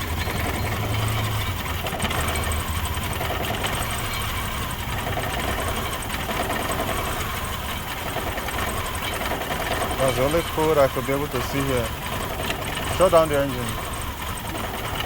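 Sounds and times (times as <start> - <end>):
car engine idling roughly: 0.0 - 15.0.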